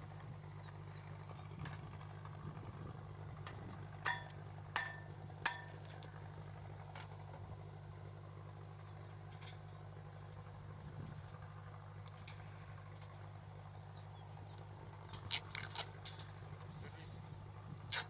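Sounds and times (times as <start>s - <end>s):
low machinery hum: 0.0s - 18.0s.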